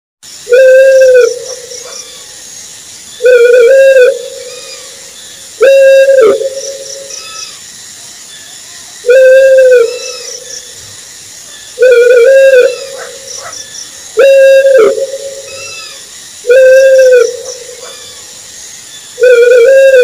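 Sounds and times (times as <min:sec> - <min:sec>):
steady hiss: 0:00.2 - 0:20.0
owl hooting: 0:00.4 - 0:02.3, 0:03.2 - 0:05.0, 0:05.6 - 0:07.6, 0:09.0 - 0:10.6, 0:11.8 - 0:18.3, 0:19.2 - 0:20.0.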